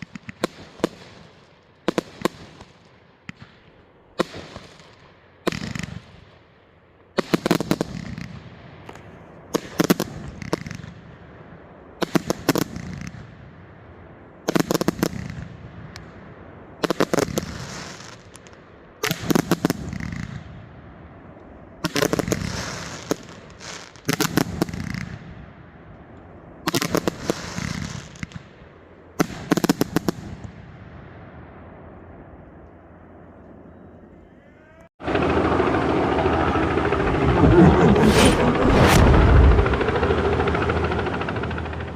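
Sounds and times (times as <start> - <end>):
low rumble: 35.4 - 41.9.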